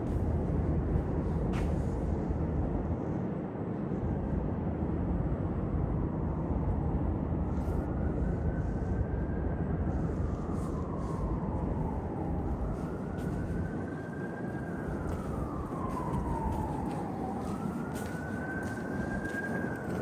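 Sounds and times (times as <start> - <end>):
faint whine: 0.0 - 20.0
low rumble of vehicle traffic: 0.0 - 20.0.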